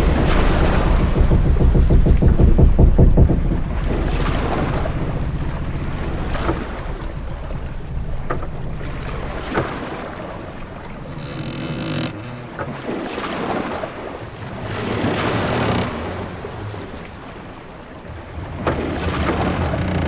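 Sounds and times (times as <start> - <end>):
sharp knocks: 0.0 - 12.8, 18.6 - 20.0
sea wash: 0.0 - 20.0
wind: 0.0 - 20.0
wooden ship creaking: 0.0 - 20.0.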